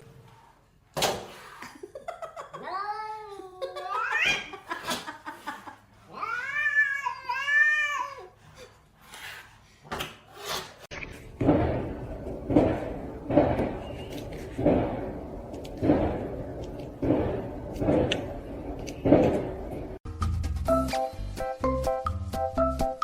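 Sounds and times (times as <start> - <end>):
cat meowing: 6.1 - 8.3.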